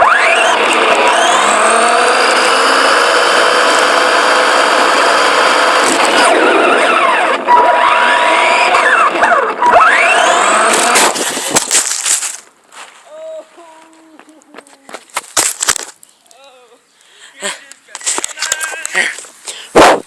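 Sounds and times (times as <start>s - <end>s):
toy car motor whining: 0.0s - 12.1s
rough tyre noise: 0.0s - 13.0s.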